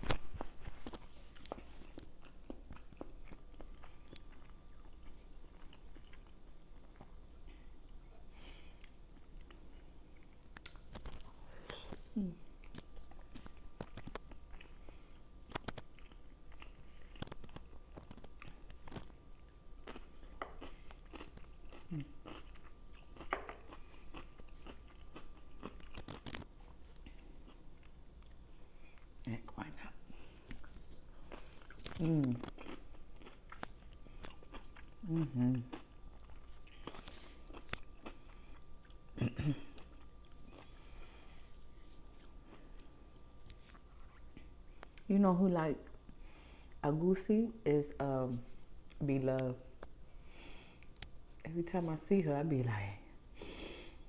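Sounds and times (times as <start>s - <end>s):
wet chewing and mouth clicks: 8.7s - 12.0s, 12.6s - 29.3s, 30.4s - 40.8s.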